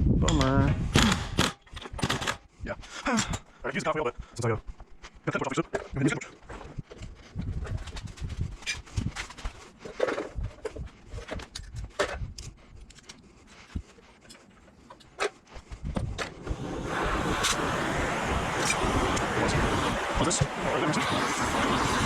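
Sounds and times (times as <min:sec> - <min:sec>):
sharp clicks and knocks: 0:00.2 - 0:02.4.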